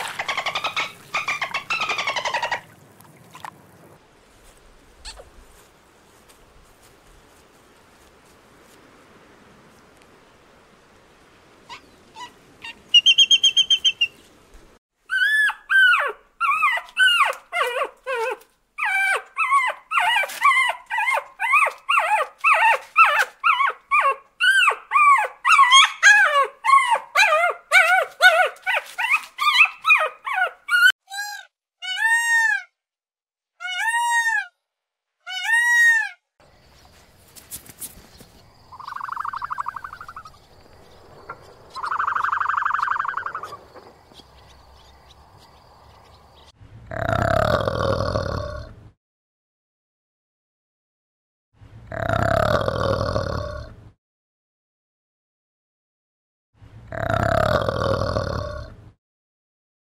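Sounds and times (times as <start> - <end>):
dog yelps: 11.7 - 13.5, 15.1 - 32.7, 33.6 - 34.6, 35.3 - 36.2
small dog yapping: 15.1 - 32.6.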